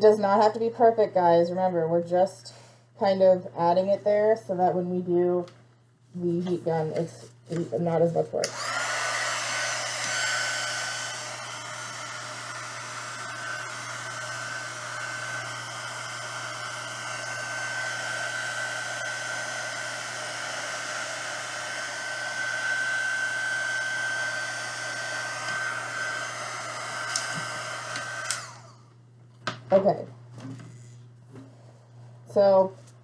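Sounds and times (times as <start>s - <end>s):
heat gun blowing with whine: 8.4s - 28.9s.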